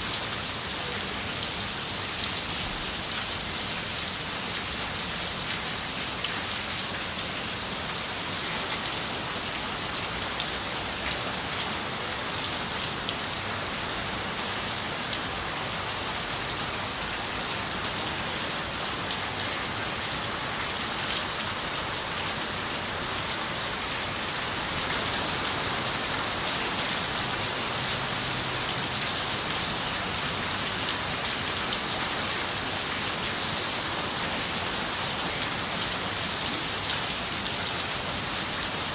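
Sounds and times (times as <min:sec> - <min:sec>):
rain on a window: 0:00.1 - 0:03.3.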